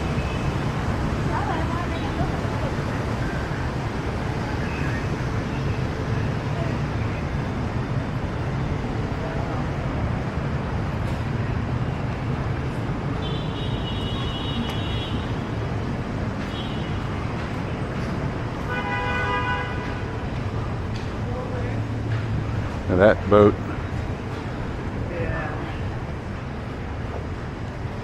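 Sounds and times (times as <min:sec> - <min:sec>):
motorbike and car traffic rumble: 0:00.0 - 0:28.0
vehicle horn honking: 0:13.2 - 0:15.3, 0:18.7 - 0:20.0.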